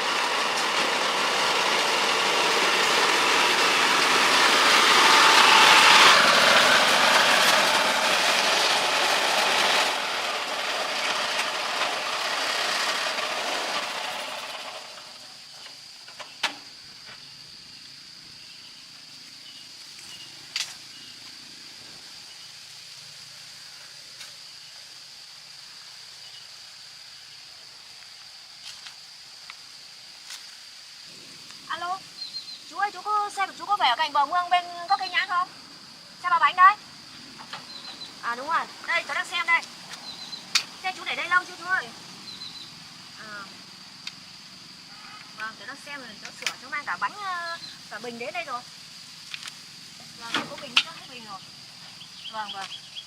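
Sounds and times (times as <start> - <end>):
motor vehicle running: 0.0 - 15.5
steady high whine: 0.0 - 16.7.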